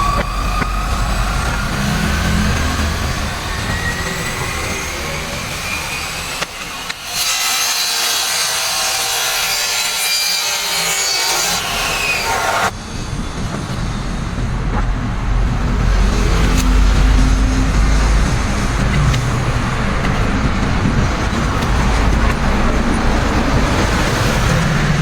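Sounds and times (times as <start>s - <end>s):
low traffic rumble: 0.0s - 6.9s, 12.7s - 25.0s
saw cutting: 0.0s - 12.8s.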